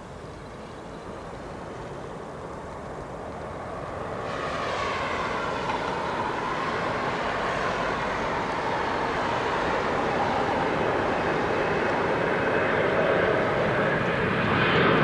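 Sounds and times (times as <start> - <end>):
jet engines rushing noise: 0.0 - 15.0.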